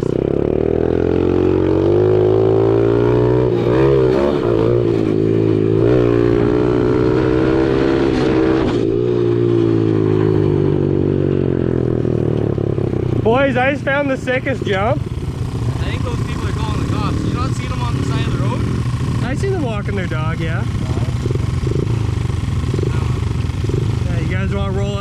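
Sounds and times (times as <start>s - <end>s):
pit bike engine revving: 0.0s - 25.0s.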